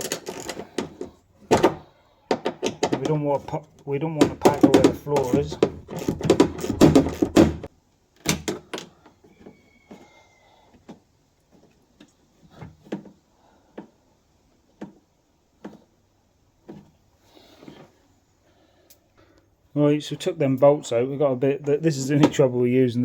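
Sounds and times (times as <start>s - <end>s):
tools and metal parts clicking: 0.0s - 1.1s.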